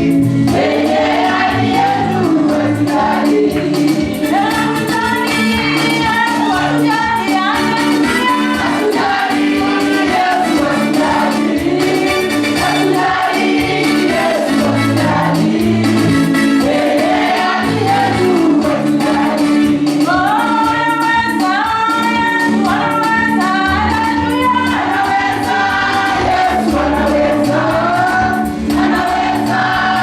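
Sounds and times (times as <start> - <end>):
choir singing gospel song: 0.0 - 30.0
instrumental backing with beat: 0.0 - 30.0.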